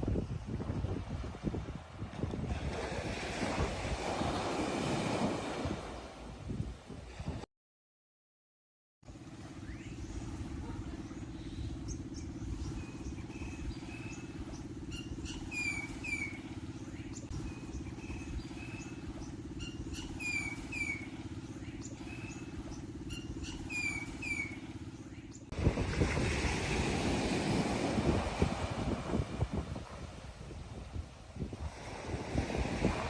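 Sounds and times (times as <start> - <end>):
bird whistling: 14.9 - 16.4, 19.6 - 21.1, 23.1 - 24.6.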